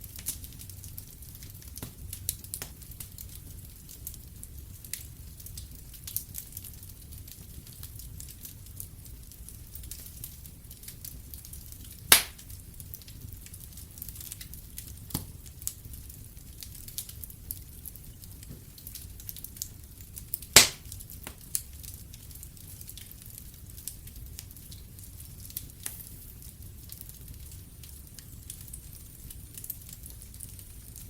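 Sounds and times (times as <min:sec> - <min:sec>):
wood fire crackling: 0:00.0 - 0:31.0
loud pops from fire: 0:11.4 - 0:13.6, 0:14.2 - 0:15.7, 0:20.3 - 0:21.7.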